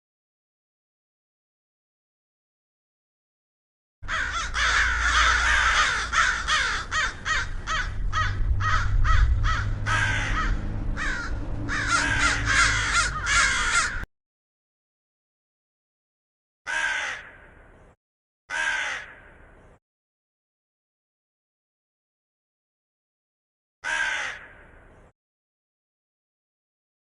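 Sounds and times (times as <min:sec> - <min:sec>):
flock of birds calling: 0:04.1 - 0:14.1
low rumble: 0:04.2 - 0:14.0.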